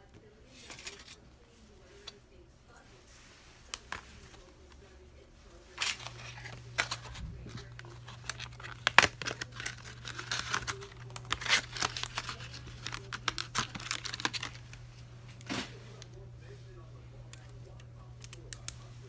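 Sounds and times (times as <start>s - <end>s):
steady low hum: 0.0s - 19.0s
plastic crinkling and tearing: 5.6s - 16.2s.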